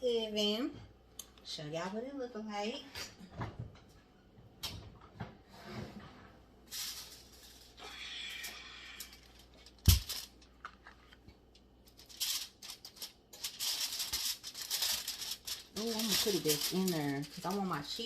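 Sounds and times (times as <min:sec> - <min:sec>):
rustling and scraping: 0:05.3 - 0:07.8, 0:09.0 - 0:18.0.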